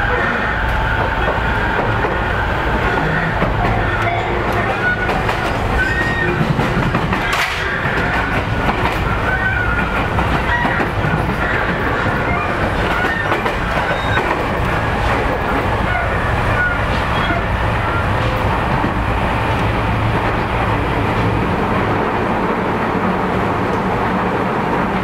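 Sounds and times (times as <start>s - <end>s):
train wheels rumbling on track: 0.0s - 25.0s
high wheel squeaks: 2.8s - 6.6s, 9.1s - 14.6s.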